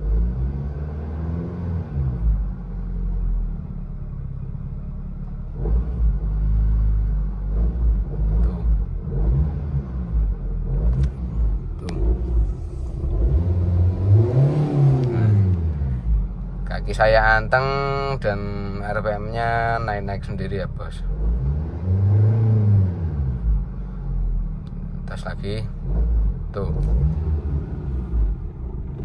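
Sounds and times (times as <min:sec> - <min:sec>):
car engine idling unsteadily: 0:02.3 - 0:09.1, 0:10.0 - 0:21.2, 0:23.4 - 0:26.9, 0:27.6 - 0:29.0.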